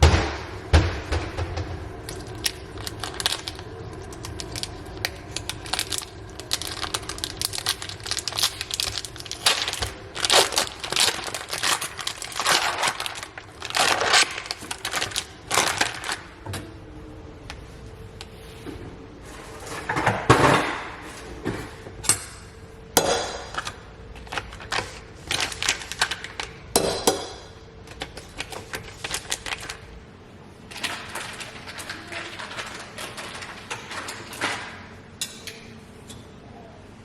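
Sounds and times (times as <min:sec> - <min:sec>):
packaging crinkling and rustling: 0:02.0 - 0:16.4, 0:23.5 - 0:26.6, 0:27.8 - 0:30.0, 0:30.7 - 0:34.7.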